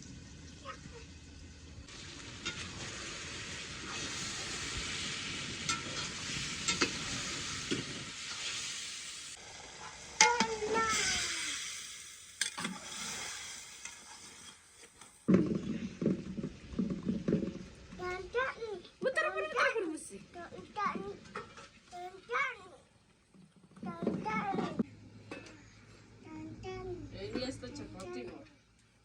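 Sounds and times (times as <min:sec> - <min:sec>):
food sizzling in hot oil: 0:00.0 - 0:22.8
voices: 0:18.0 - 0:21.3, 0:26.2 - 0:28.5.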